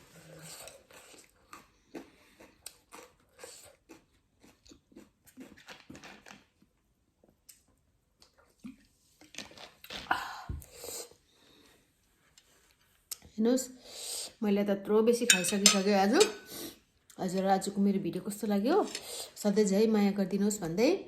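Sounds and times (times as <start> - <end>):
crunching and chewing vegetables: 0.0 - 10.1.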